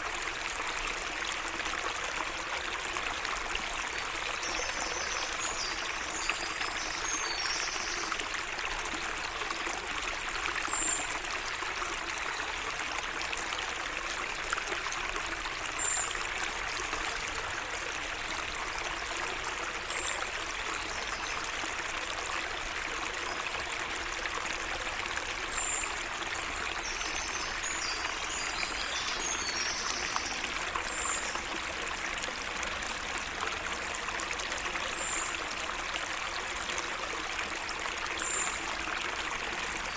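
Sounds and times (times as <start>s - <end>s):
water trickling: 0.0s - 39.9s
birds twittering song: 4.3s - 8.2s, 26.8s - 31.5s.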